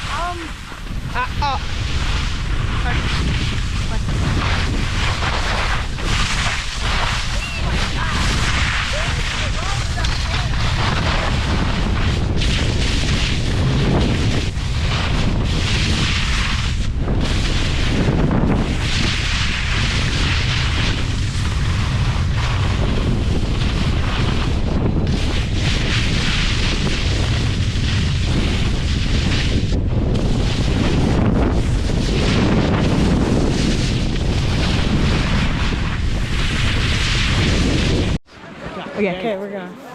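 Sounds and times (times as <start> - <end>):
wind buffeting microphone: 0.0 - 39.7.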